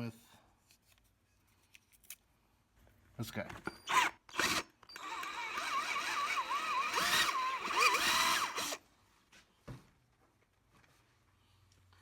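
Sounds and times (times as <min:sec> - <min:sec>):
power drill drilling metal: 0:03.9 - 0:08.8.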